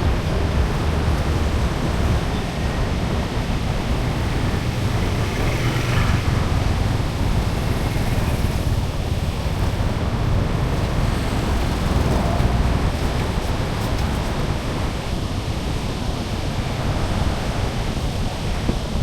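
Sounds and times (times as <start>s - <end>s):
low street rumble: 0.0s - 19.0s.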